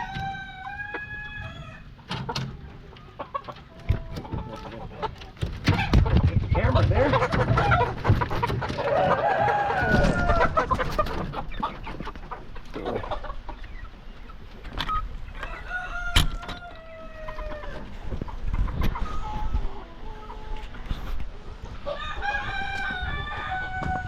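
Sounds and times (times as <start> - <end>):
long drawn-out chicken calls: 0.0 - 6.0, 7.0 - 24.0
chickens clucking: 0.0 - 24.0
knocks and rustles: 3.4 - 9.1.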